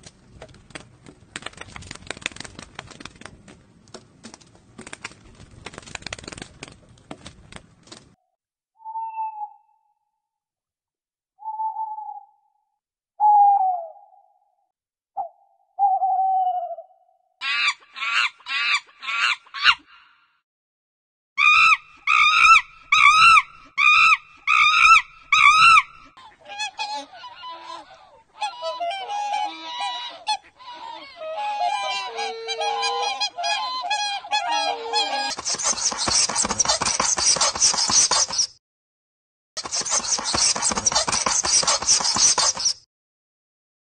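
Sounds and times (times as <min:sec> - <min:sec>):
harsh shrill animal calls: 0:21.4 - 0:38.5
chorus of honking calls: 0:31.2 - 0:35.3.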